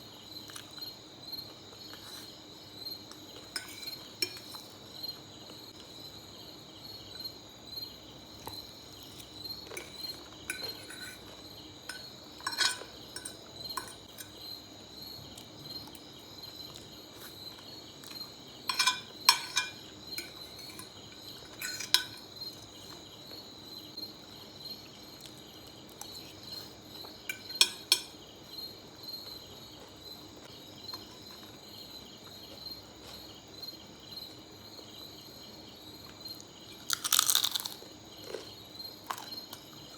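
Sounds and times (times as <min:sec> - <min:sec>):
cutlery clinking on a dish: 0:03.5 - 0:04.6, 0:09.7 - 0:14.4, 0:18.7 - 0:22.3, 0:27.3 - 0:28.2.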